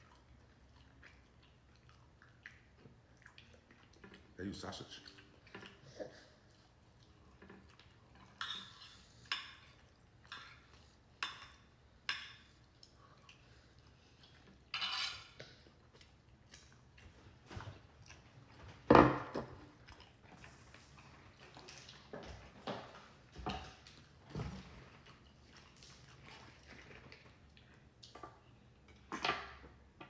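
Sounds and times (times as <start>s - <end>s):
cutlery clinking on plate: 14.7s - 15.4s.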